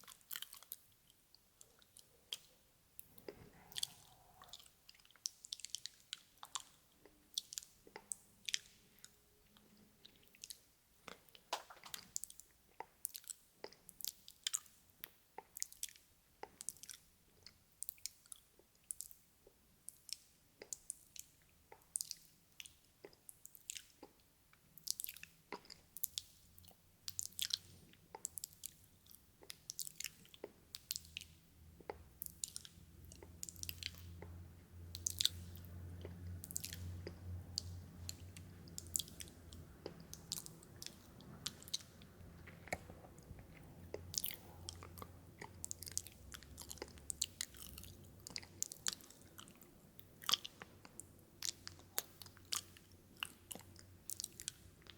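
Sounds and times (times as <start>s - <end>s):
mouth clicks and smacks: 0.0s - 24.2s, 24.8s - 54.9s
low steady hum: 26.7s - 54.9s.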